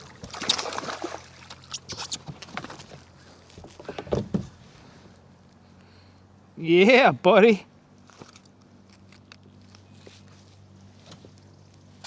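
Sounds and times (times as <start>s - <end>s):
water splashing around kayak: 0.0s - 4.6s.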